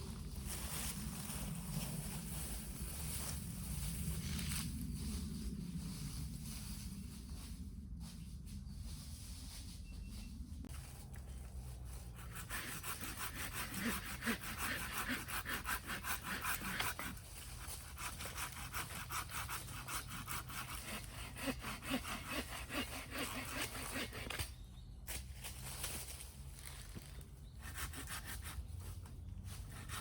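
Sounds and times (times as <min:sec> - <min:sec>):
hand saw cutting wood: 0:12.1 - 0:24.6, 0:27.6 - 0:28.7, 0:29.6 - 0:30.0.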